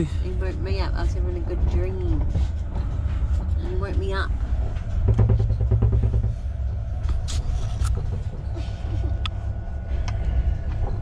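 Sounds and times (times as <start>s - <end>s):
train carriage rumbling on rails: 0.0s - 11.0s
sharp clicks and rattles: 0.3s - 9.4s.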